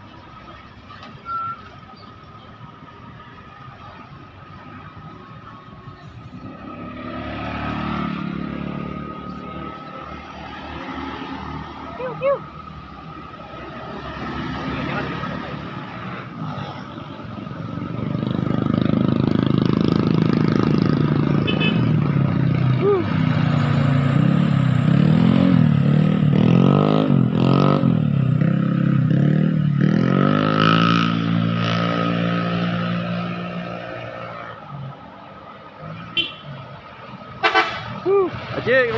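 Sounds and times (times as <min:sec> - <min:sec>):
truck engine revving: 0:06.4 - 0:35.1.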